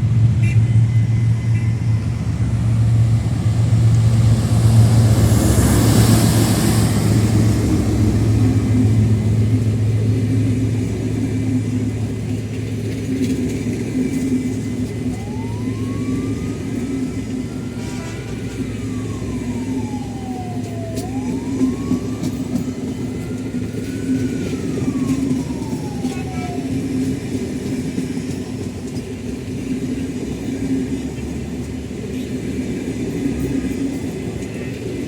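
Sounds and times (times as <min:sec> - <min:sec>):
low engine rumble: 0:00.0 - 0:35.0
siren wailing: 0:00.3 - 0:12.4, 0:13.9 - 0:27.6.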